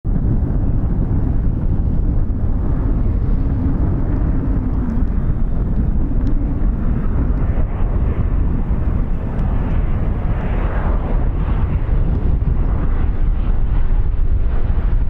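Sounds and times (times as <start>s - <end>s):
aircraft engine rumble: 0.0s - 15.0s
wind buffeting microphone: 0.0s - 15.0s.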